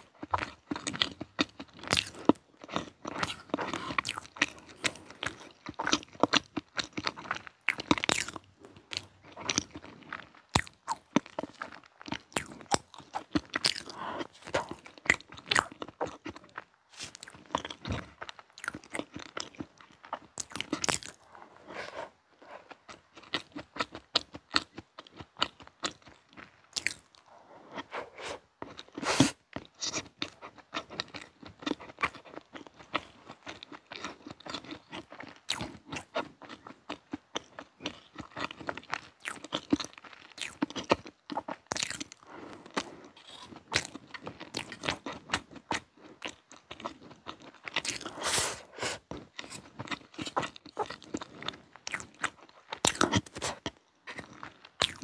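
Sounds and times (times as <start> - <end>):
chewing and biting cake: 0.0 - 55.0.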